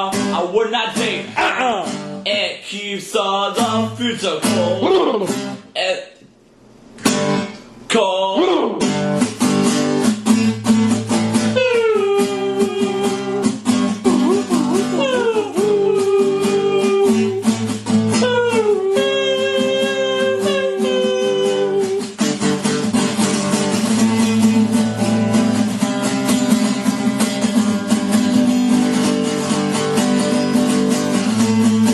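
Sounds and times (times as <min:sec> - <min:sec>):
acoustic guitar strumming: 0:22.2 - 0:31.9.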